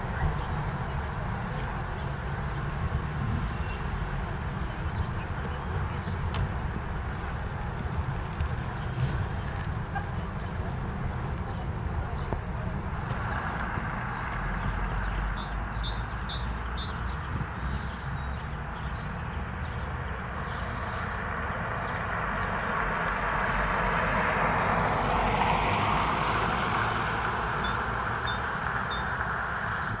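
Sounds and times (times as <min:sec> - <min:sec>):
small birds chirping: 0:07.8 - 0:23.1, 0:27.4 - 0:30.0.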